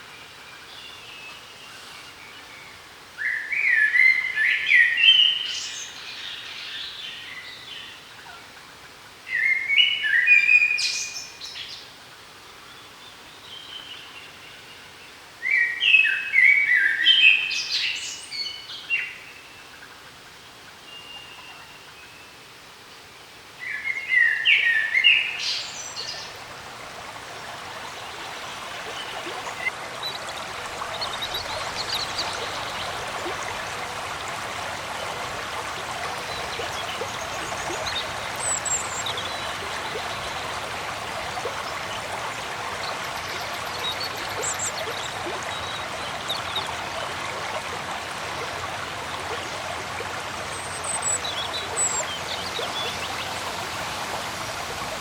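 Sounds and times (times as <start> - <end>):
forest stream rushing: 23.6 - 55.0.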